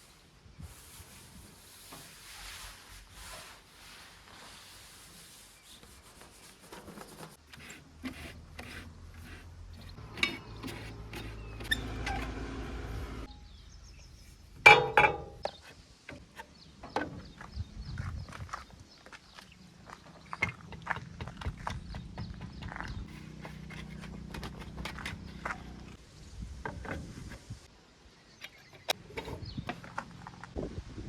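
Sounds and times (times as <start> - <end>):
bucket scraping and knocking in mud: 6.8 - 13.3, 20.4 - 26.0, 28.8 - 30.5
low engine rumble: 8.4 - 14.0.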